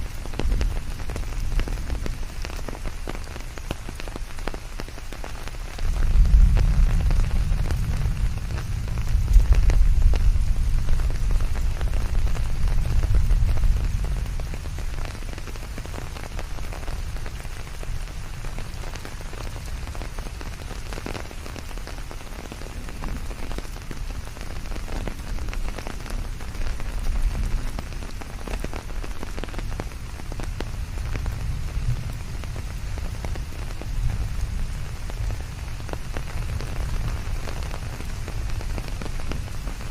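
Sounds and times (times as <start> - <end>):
steady rain falling: 0.0 - 39.9
deep low rumble: 5.9 - 14.7.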